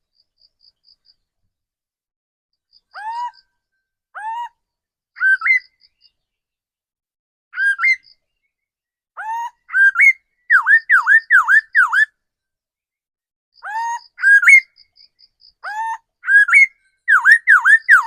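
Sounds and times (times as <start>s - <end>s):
bird singing whistled notes: 5.2s - 6.3s, 7.6s - 8.7s, 9.7s - 12.1s, 14.0s - 15.5s, 16.2s - 18.0s.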